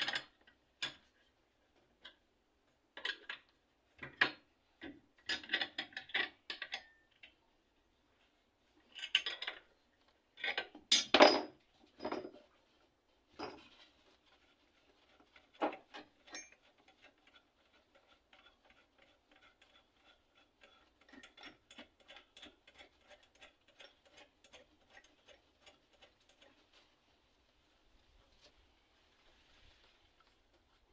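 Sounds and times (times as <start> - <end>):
metallic clinks and knocks: 16.2 - 16.7.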